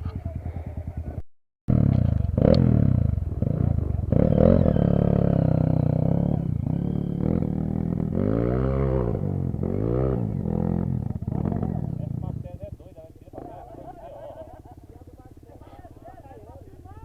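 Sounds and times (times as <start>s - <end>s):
dirt bike engine revving: 1.7s - 15.4s.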